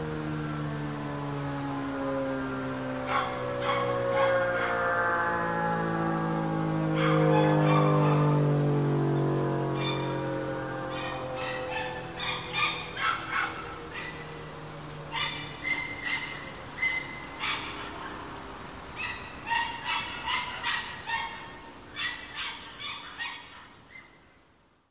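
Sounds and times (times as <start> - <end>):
rotating siren winding down: 0.0 - 22.4
birds giving harsh calls: 3.0 - 4.9, 6.9 - 24.3.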